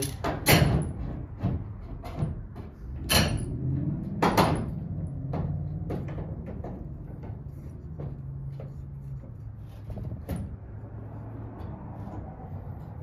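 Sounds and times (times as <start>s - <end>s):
wooden clamps knocking: 0.0s - 9.1s.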